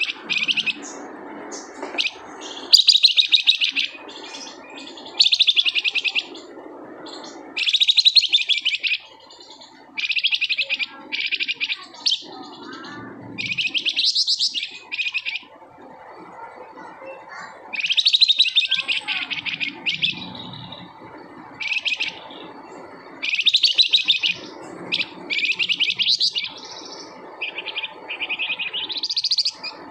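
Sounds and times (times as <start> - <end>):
songbird trilling bursts: 0.0 - 1.0, 2.0 - 15.5, 17.7 - 29.9.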